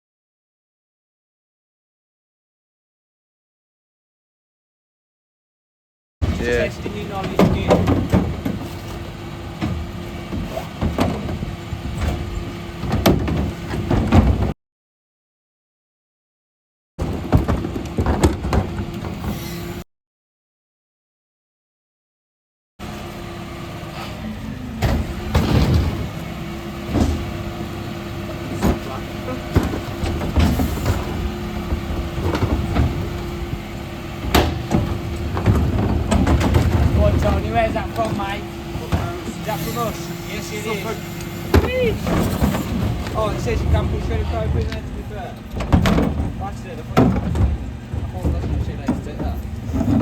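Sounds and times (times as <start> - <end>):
bin lorry humming: 6.2 - 14.6, 17.0 - 19.8, 22.8 - 50.0
sharp clunks and knocks: 7.1 - 14.6, 26.8 - 27.5, 28.4 - 33.6, 34.2 - 39.4, 41.0 - 50.0.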